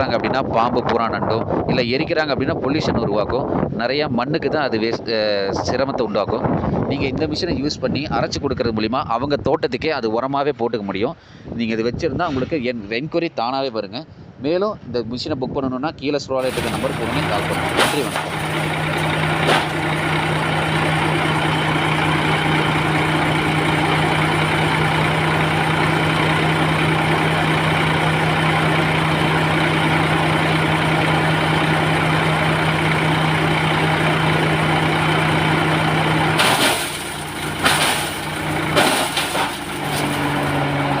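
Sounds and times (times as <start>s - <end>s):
tractor engine running: 16.4s - 41.0s
sharp knocks and crackles: 16.5s - 20.6s, 36.4s - 40.6s.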